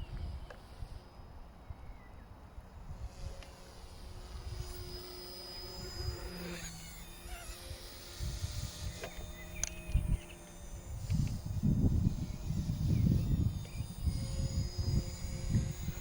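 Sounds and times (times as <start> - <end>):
rc helicopter motor whine: 0.0 - 16.0
wind buffeting microphone: 7.7 - 16.0.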